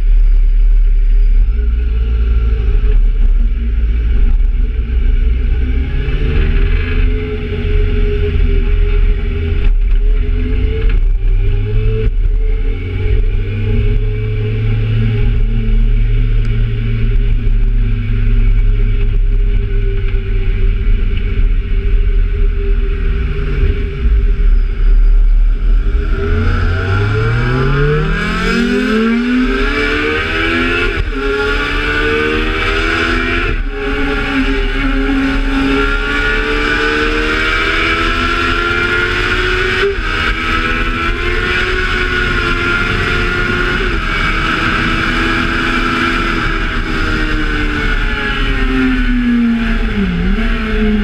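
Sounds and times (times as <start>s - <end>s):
motorcycle engine accelerating: 0.0s - 51.0s
wind rush: 19.0s - 51.0s.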